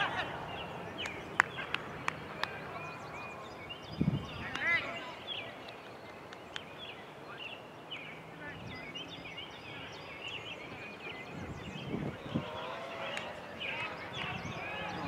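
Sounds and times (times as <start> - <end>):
birds chirping: 0.0 - 15.0
faint distant voices: 0.0 - 15.0.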